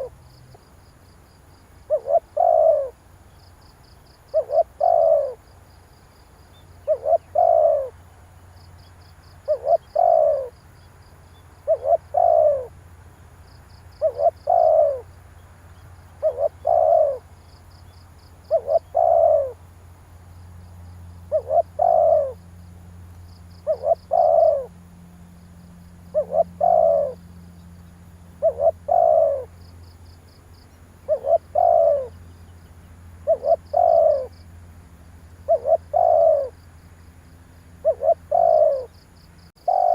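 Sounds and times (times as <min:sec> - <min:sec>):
dove cooing: 0:01.8 - 0:03.1, 0:04.3 - 0:05.5, 0:06.5 - 0:08.0, 0:09.4 - 0:10.6, 0:11.6 - 0:12.8, 0:13.8 - 0:15.1, 0:16.1 - 0:17.4, 0:18.3 - 0:19.6, 0:21.2 - 0:22.4, 0:23.6 - 0:24.8, 0:26.0 - 0:27.6, 0:28.3 - 0:29.7, 0:31.0 - 0:32.4, 0:33.2 - 0:34.4, 0:35.4 - 0:36.6, 0:37.8 - 0:39.9.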